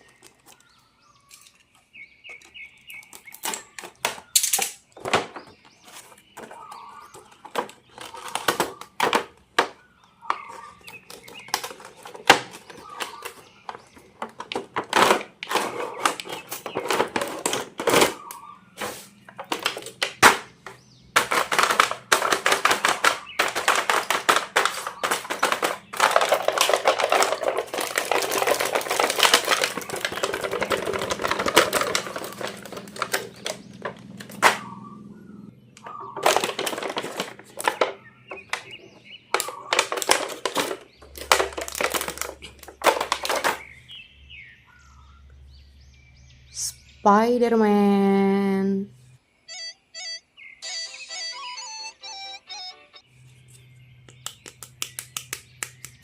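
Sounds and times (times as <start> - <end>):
plastic packaging clicks and taps: 19.3 - 34.6, 54.0 - 56.0
plastic packaging crinkling: 21.2 - 34.6, 36.1 - 43.8.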